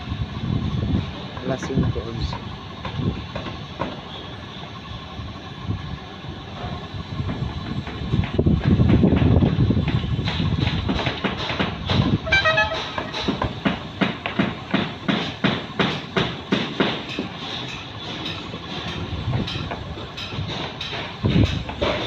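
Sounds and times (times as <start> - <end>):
rapid irregular knocking: 7.2 - 22.0.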